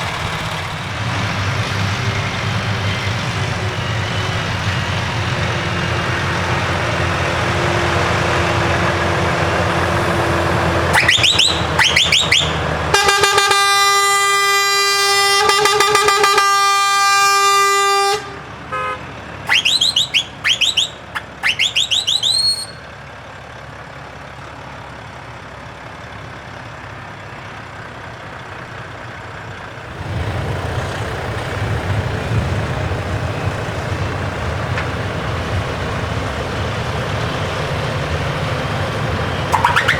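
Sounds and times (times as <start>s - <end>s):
truck engines running: 0.0s - 39.9s
pulsing air horn blast: 10.7s - 22.8s, 39.5s - 39.9s
rising whistle-like horn sweeps: 10.9s - 22.8s, 39.5s - 39.9s.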